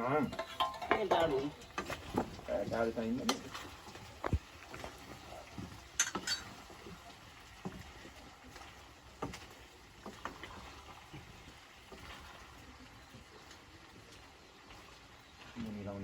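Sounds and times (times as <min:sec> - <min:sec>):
utensils clinking against pot: 0:00.0 - 0:03.7, 0:06.0 - 0:06.7.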